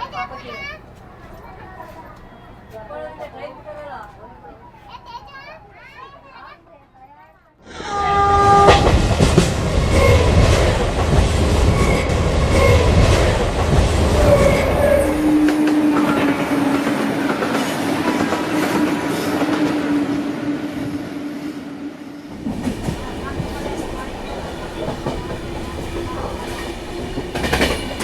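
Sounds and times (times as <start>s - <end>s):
heavy train rumble: 7.7s - 28.0s
train wheels clicking: 8.6s - 19.8s, 22.3s - 28.0s.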